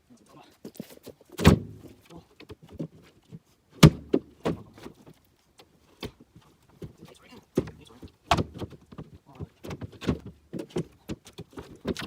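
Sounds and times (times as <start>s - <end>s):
firewood thudding down: 1.3s - 2.1s, 3.8s - 5.0s, 7.5s - 12.0s
wood knocking: 6.8s - 12.0s.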